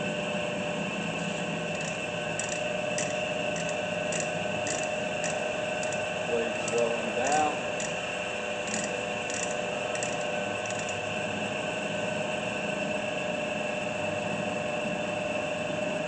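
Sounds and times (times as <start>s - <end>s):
bandsaw motor running: 1.3s - 11.8s
light ticking: 1.8s - 6.0s.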